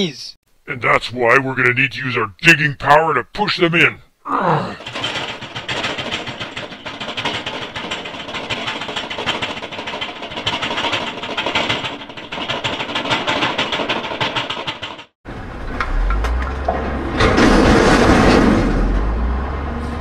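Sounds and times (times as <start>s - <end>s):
digger engine clattering rumble: 4.8s - 19.2s.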